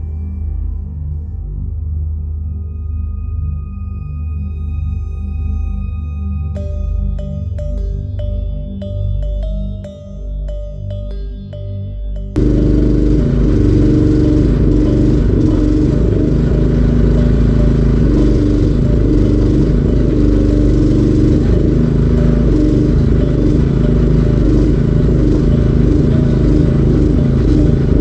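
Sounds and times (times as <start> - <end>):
small engine running: 12.3 - 28.0.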